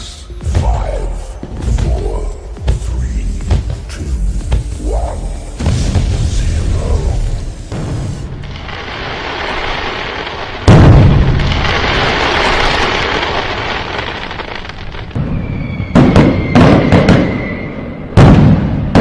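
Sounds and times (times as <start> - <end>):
fireworks aerial burst crackling: 0.6 - 15.2
sharp firework bangs: 7.7 - 17.4, 18.2 - 19.0
firework whistle: 15.2 - 18.2.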